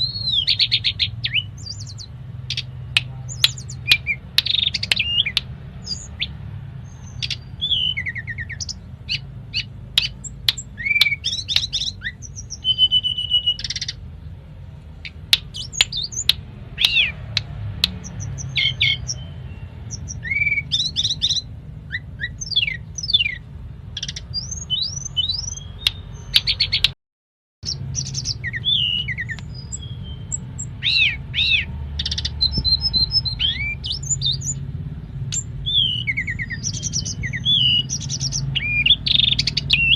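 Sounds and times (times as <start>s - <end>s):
bird singing varied song: 0.0s - 27.0s, 27.6s - 39.9s.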